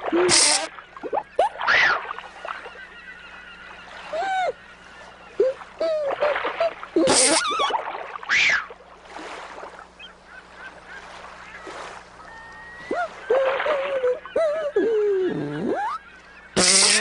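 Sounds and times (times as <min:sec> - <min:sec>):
goose-like honking calls: 0:15.6 - 0:17.0.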